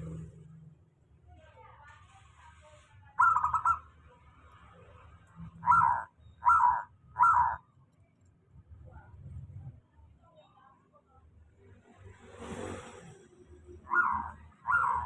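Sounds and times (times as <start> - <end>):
dove cooing: 3.2 - 3.8, 5.6 - 7.6, 13.9 - 15.0.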